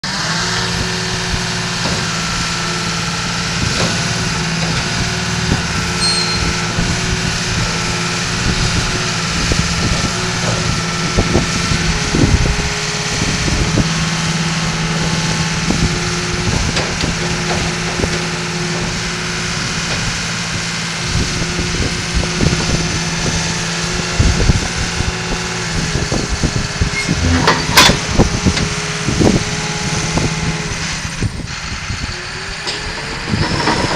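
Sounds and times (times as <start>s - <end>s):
bulldozer diesel engine running: 0.0s - 33.9s
metal knocks and clanks: 26.8s - 28.7s.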